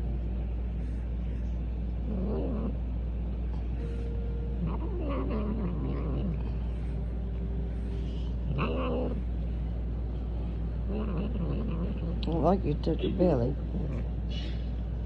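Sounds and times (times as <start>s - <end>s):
cat yowling: 4.6s - 6.4s.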